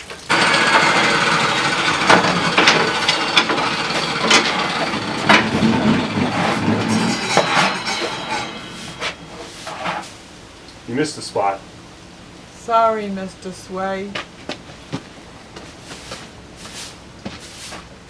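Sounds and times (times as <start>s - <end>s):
steel pieces knocking and clanking: 0.2s - 10.2s
machine running: 0.3s - 10.1s.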